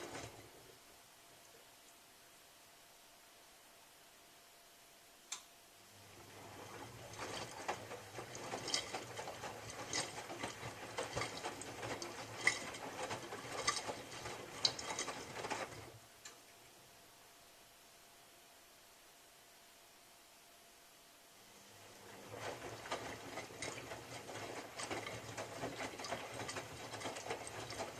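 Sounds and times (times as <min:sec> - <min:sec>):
washing machine motor hum: 0:00.0 - 0:01.5, 0:05.8 - 0:17.6, 0:21.4 - 0:27.9
laundry clattering in drum: 0:06.4 - 0:16.0, 0:22.2 - 0:27.9.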